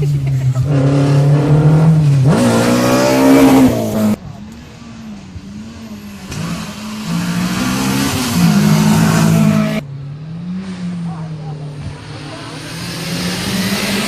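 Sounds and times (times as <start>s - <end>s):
rally car engine at full throttle: 0.0s - 14.0s
rally engine rising and falling: 0.0s - 14.0s.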